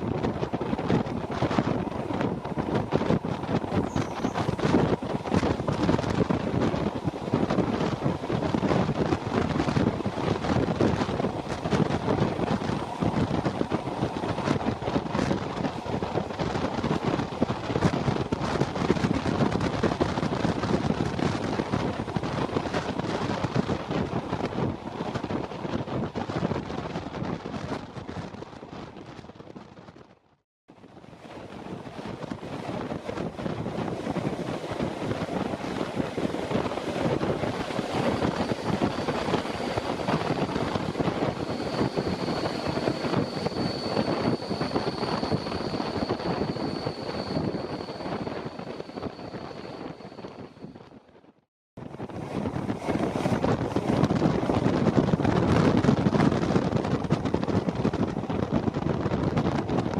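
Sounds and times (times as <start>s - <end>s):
train wheels rumbling on track: 0.0s - 29.3s, 31.0s - 50.9s, 51.8s - 59.9s
wind buffeting microphone: 0.0s - 30.2s, 30.8s - 59.9s
faint high whine: 31.5s - 50.9s.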